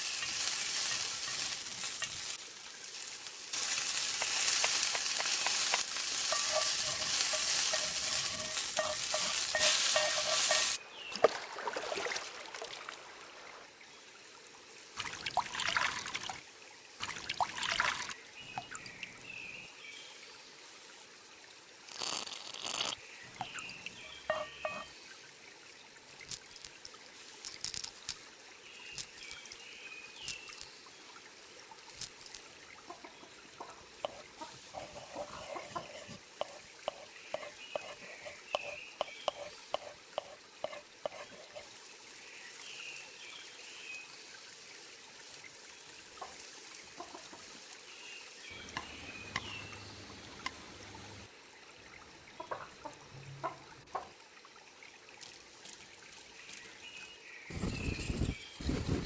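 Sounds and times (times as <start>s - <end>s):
food sizzling in a pan: 0.0s - 10.8s, 19.2s - 25.5s, 26.7s - 31.6s, 33.0s - 51.3s
cooking utensils clattering: 3.6s - 10.8s, 23.4s - 25.0s.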